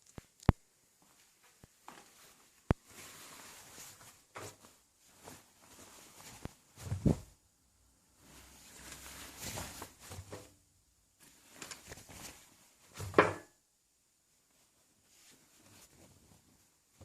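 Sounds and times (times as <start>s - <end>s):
soft rustling and handling: 0.0s - 7.4s, 8.1s - 10.6s, 11.2s - 13.2s, 14.2s - 17.0s.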